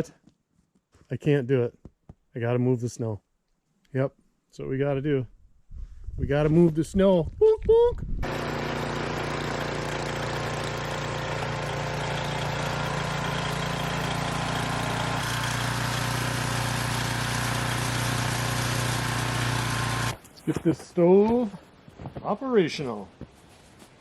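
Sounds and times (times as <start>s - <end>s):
snowblower engine running: 8.2s - 20.2s.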